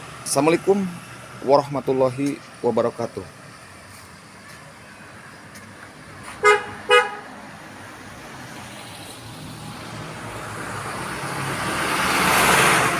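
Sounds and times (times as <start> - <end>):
rushing vehicle noise: 0.0 - 12.9
vehicle horn beeping: 6.4 - 7.3.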